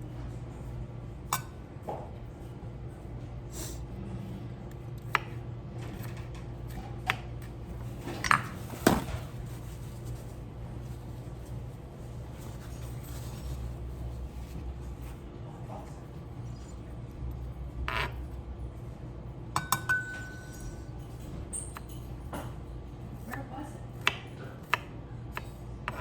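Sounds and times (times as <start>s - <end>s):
steady low hum: 0.0s - 26.0s
kitchenware knocking and clinking: 19.6s - 20.6s.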